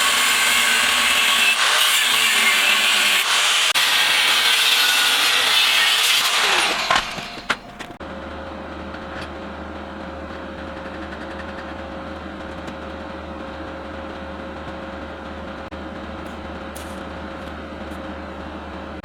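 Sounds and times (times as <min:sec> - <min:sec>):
power grinder winding down: 0:00.0 - 0:07.5
machine hum with steady tone: 0:07.4 - 0:19.0.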